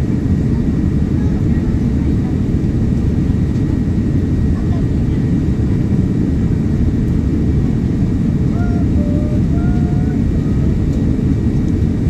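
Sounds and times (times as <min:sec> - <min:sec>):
aircraft cabin engine roar: 0:00.0 - 0:12.0
faint voice: 0:08.5 - 0:10.8.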